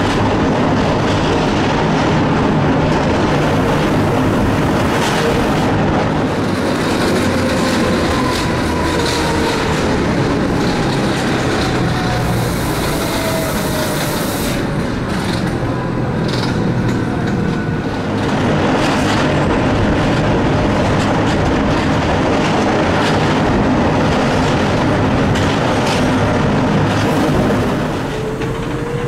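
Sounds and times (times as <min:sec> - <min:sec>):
wheel-on-rail noise: 0:00.0 - 0:29.0.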